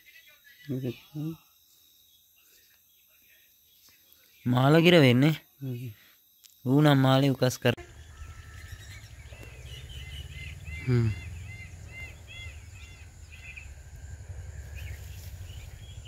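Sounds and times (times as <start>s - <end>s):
bird calling short arched note: 7.8s - 13.6s
low steady rumble: 7.8s - 16.0s.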